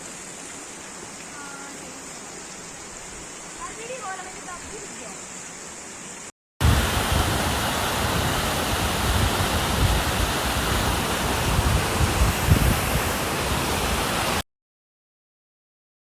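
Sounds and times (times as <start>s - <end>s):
river water roaring: 6.6s - 14.4s
wind buffeting microphone: 6.6s - 14.4s.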